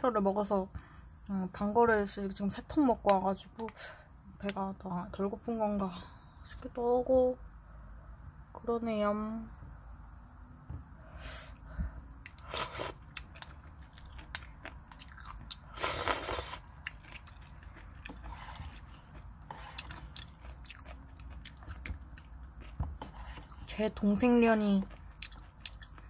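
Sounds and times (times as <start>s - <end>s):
person chewing noodles: 12.1s - 26.0s.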